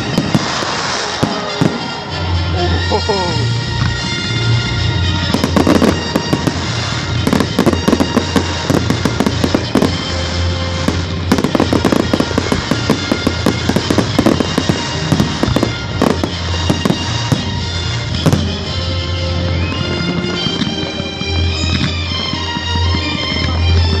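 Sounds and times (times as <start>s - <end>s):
background music: 0.0s - 24.0s
firework bangs and crackles: 0.0s - 24.0s.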